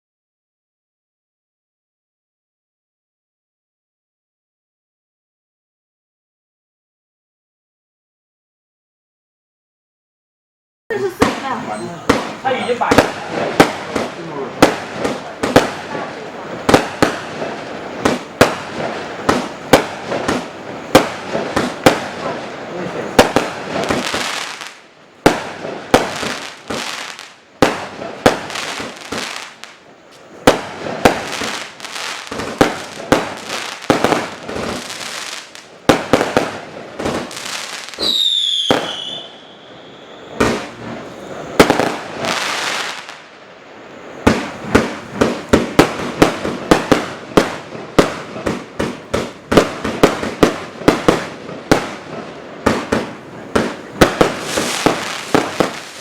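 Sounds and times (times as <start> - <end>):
fireworks bangs: 10.9 - 56.0
fireworks crackling: 10.9 - 56.0
firework whistle: 11.0 - 13.8, 37.2 - 43.1.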